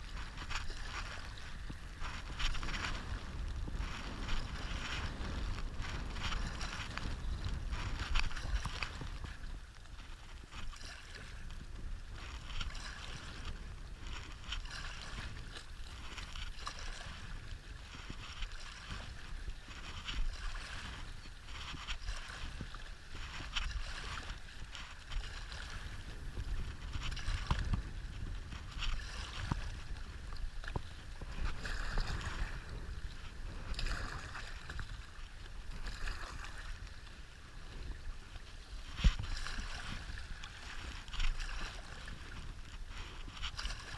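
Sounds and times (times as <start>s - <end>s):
wind buffeting microphone: 0.0s - 43.9s.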